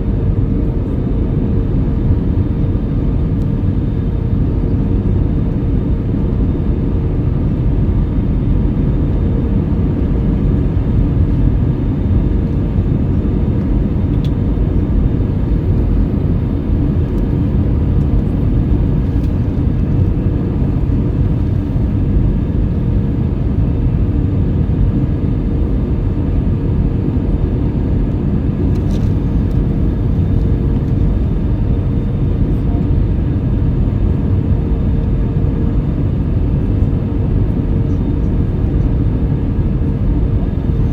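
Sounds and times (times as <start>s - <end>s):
constant hum tone: 0.0s - 40.9s
jet engine and airflow drone: 0.0s - 40.9s.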